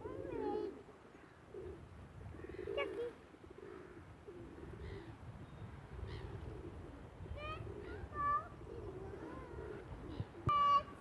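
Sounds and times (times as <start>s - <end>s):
wind rumble on microphone: 4.6s - 10.7s.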